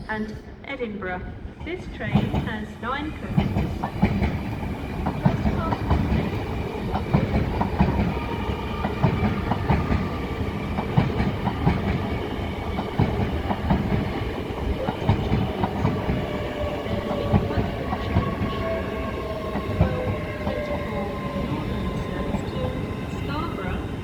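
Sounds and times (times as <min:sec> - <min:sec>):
low train rumble: 0:00.0 - 0:24.0
train wheels clattering over rails: 0:02.1 - 0:02.6, 0:03.3 - 0:24.0.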